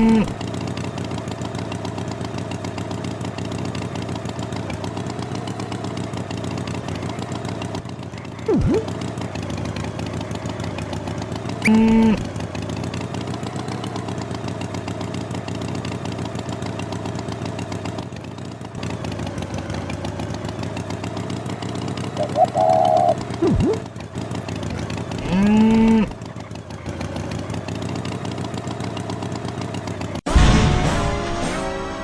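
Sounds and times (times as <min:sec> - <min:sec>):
engine idling: 0:00.0 - 0:30.3
short loud pitched tones: 0:08.5 - 0:08.9, 0:22.2 - 0:23.8.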